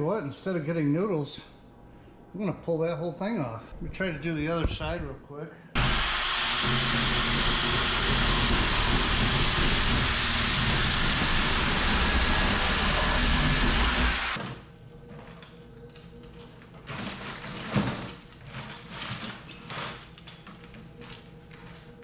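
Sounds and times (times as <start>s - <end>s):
power tool motor whining: 5.8s - 14.4s.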